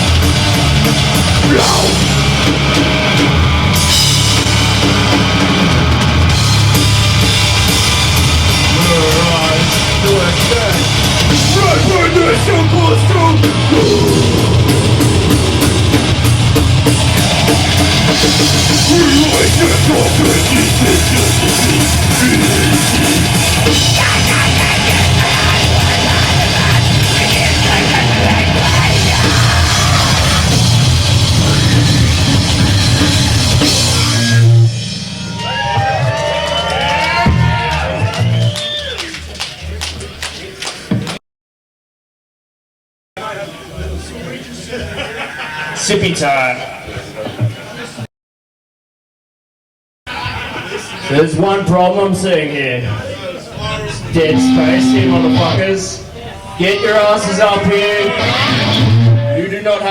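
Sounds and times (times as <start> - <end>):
loud heavy metal band playing: 0.0 - 38.3, 53.7 - 59.2.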